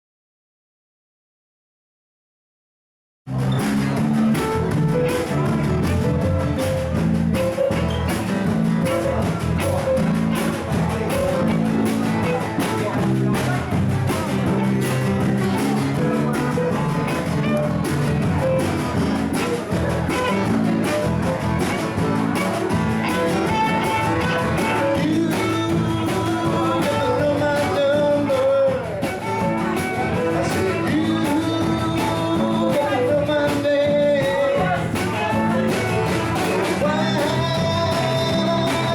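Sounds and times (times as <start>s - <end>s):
rock band playing: 3.3s - 38.9s
person singing: 22.4s - 38.9s.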